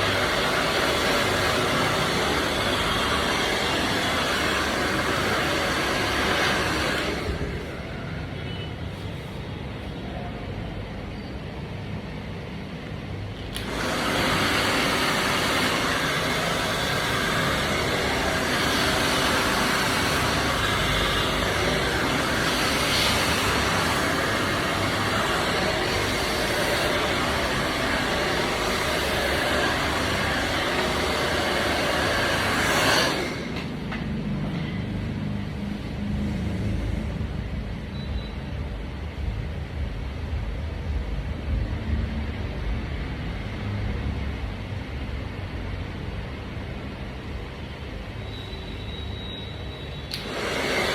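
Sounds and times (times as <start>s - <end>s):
hair dryer blowing: 0.0s - 8.2s, 13.4s - 41.6s, 50.0s - 50.9s.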